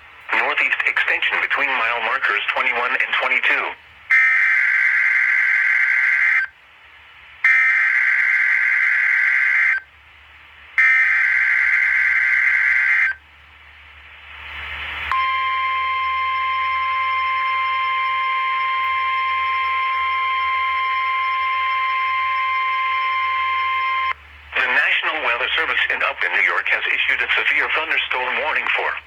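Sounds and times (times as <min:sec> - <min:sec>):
high-pitched warning alarm tone: 0:07.5 - 0:09.8, 0:10.8 - 0:13.2, 0:15.1 - 0:24.2.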